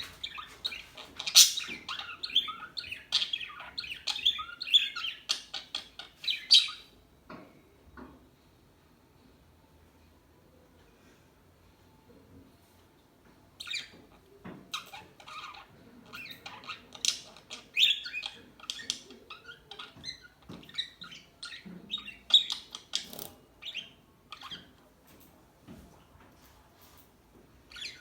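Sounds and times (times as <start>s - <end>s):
budgerigars chattering: 0.0s - 6.8s.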